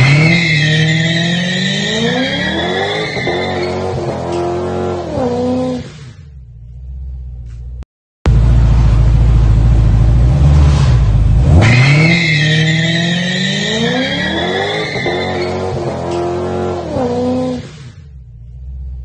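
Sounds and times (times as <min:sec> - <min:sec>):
tyre squeal: 0:00.0 - 0:04.2, 0:11.6 - 0:16.1
car engine revving: 0:00.0 - 0:19.0.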